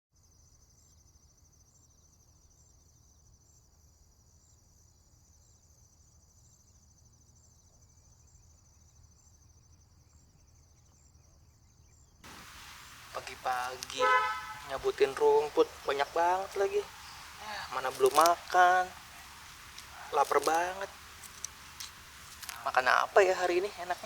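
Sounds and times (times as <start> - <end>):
insects trilling: 12.2 - 24.0.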